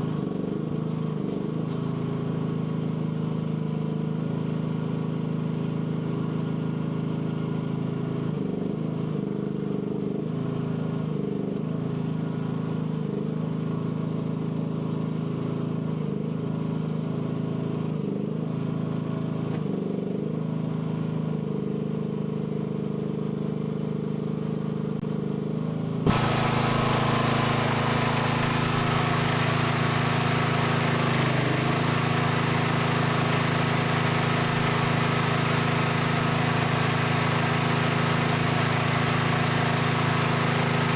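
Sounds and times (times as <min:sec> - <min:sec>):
excavator engine running: 0:26.1 - 0:40.9.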